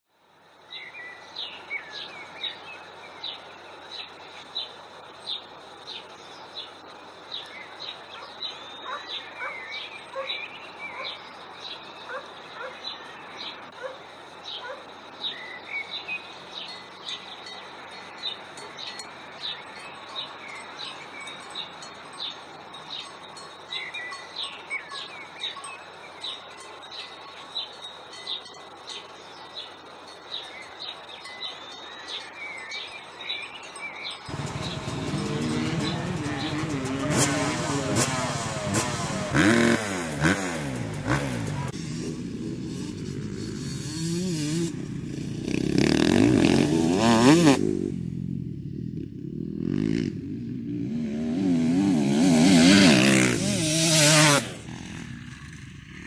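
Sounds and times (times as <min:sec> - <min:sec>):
steady outdoor hiss: 0:00.1 - 0:56.0
birds warbling calls: 0:07.3 - 0:17.6, 0:30.4 - 0:41.8.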